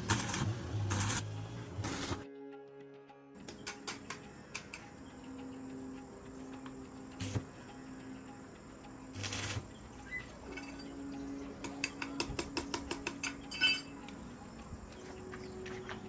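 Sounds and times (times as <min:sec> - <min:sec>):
metal clank: 0:13.0 - 0:14.0.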